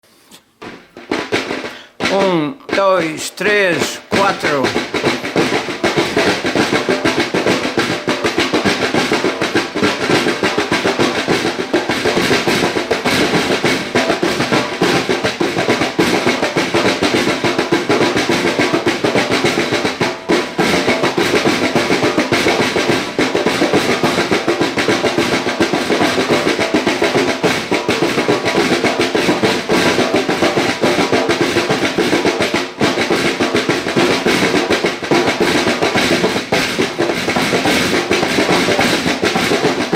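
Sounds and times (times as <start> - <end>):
snare drum rolls: 0.0 - 39.9
fast drum kit music: 0.5 - 39.9.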